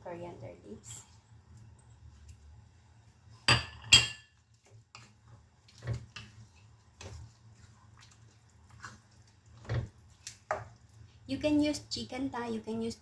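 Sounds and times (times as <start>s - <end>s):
utensil scraping on pan: 4.7s - 10.7s.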